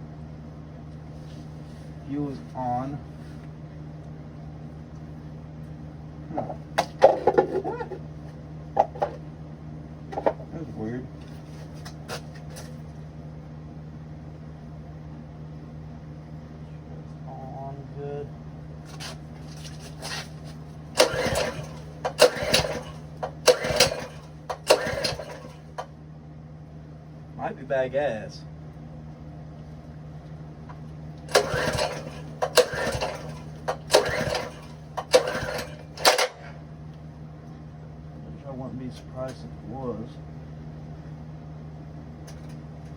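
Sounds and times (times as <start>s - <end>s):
low mechanical hum: 0.0s - 42.9s
recoil pull-starter rasping: 20.0s - 25.9s, 31.3s - 36.6s.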